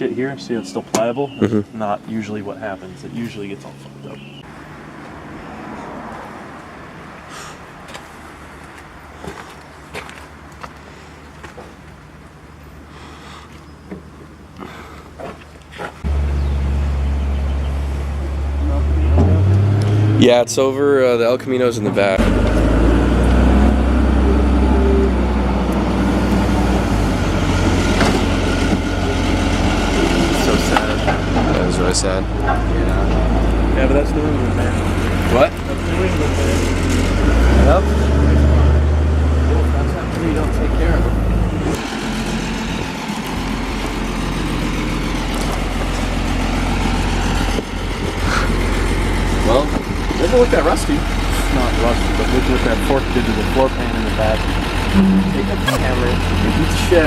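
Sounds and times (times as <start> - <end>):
engine running with low rumble: 7.8 - 20.4, 21.6 - 57.0
engine idling: 39.5 - 57.0.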